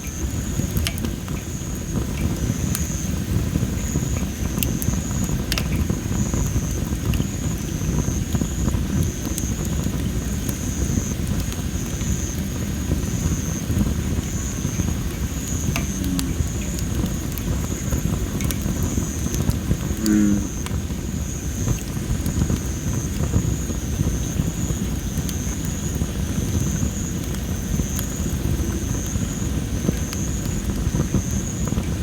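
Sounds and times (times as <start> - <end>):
firewood crackling and popping: 0.0 - 32.0
low steady rumble: 13.8 - 21.4.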